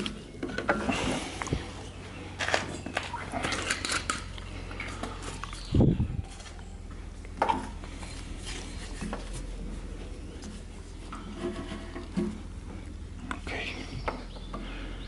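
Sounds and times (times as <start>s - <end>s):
low steady hum: 0.0s - 15.0s
clicks and clinks of handling: 2.4s - 5.6s.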